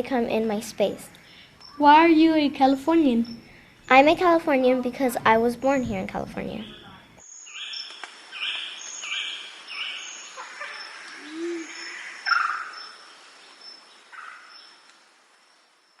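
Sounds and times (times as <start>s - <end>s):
birds chirping and calling: 0.3s - 14.9s.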